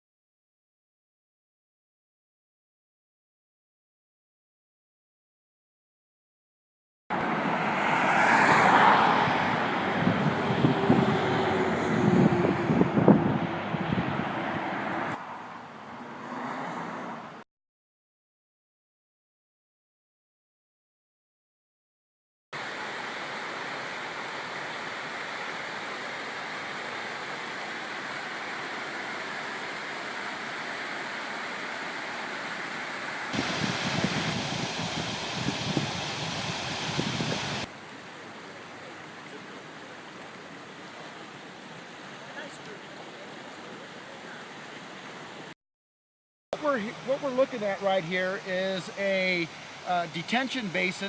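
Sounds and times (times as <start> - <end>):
vehicle passing: 7.2 - 17.4
wind on microphone: 9.2 - 14.7, 33.3 - 37.7
steady rushing noise: 22.6 - 37.7.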